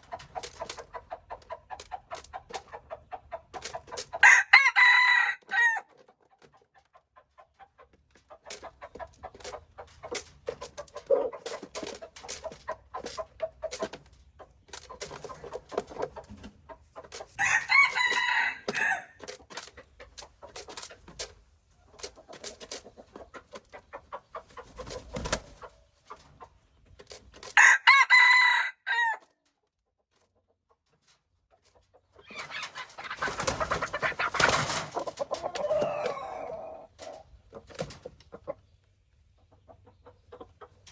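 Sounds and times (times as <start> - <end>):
chickens clucking: 0.0 - 40.9
rooster crowing: 4.2 - 5.8, 17.4 - 19.2, 27.6 - 29.2.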